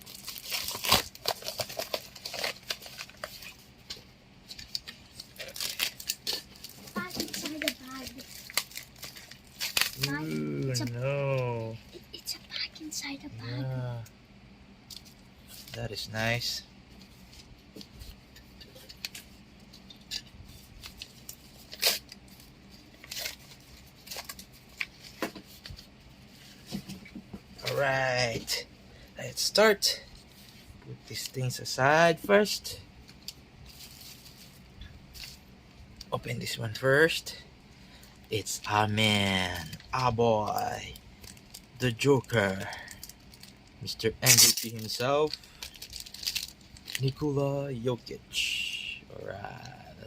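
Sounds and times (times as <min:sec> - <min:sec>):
plastic packaging crinkling: 0:00.0 - 0:03.7, 0:04.5 - 0:10.8, 0:18.8 - 0:26.6, 0:33.0 - 0:35.4, 0:40.4 - 0:47.2.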